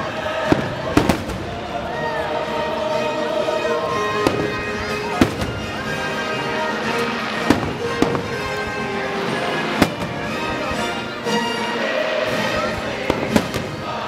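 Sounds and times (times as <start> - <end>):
fireworks bursting: 0.0 - 1.9, 3.9 - 11.2, 12.5 - 14.0
music: 0.0 - 14.0.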